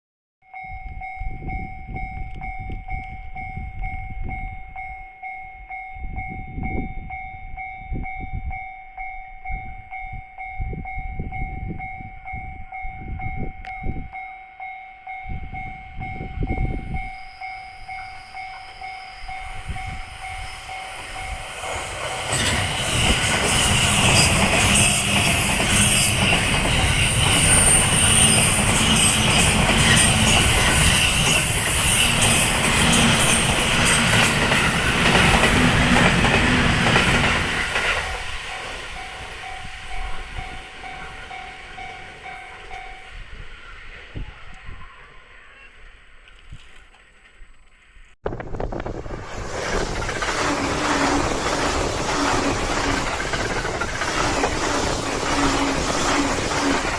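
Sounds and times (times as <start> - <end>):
two-tone crossing bell ringing: 0.4 - 43.2
train passing: 6.2 - 47.6, 48.3 - 56.9.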